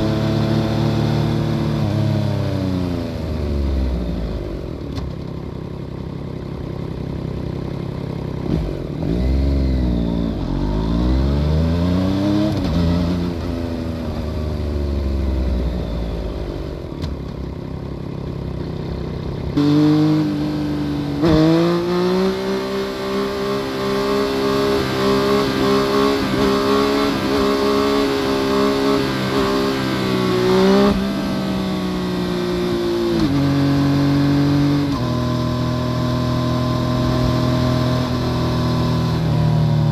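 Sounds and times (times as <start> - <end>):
motorcycle engine revving: 7.3 - 17.6, 18.5 - 39.9.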